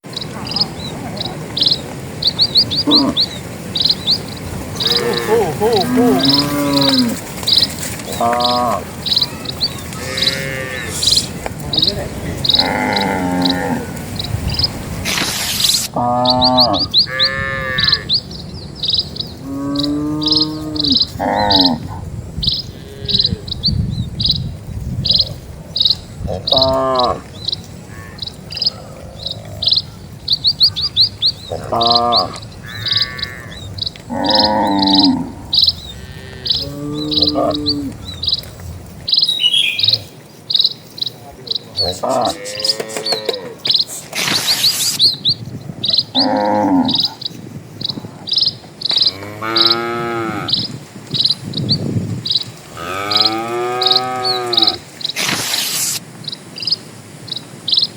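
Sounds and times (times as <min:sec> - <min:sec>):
cattle calling: 0:00.1 - 0:23.5, 0:25.2 - 0:45.1, 0:48.9 - 0:50.7, 0:52.6 - 0:55.8
bird chirping high note: 0:39.2 - 0:40.2.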